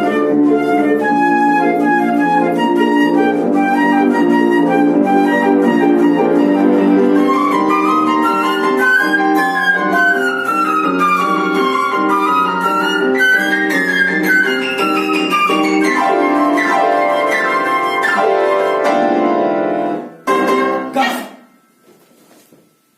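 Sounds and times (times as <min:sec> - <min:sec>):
flute and piano music: 0:00.0 - 0:21.7.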